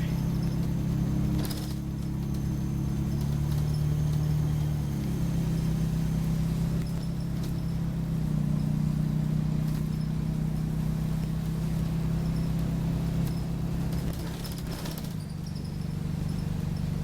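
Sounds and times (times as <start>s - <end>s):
bus engine droning: 0.0s - 17.0s
faint small squeaks: 12.2s - 17.0s.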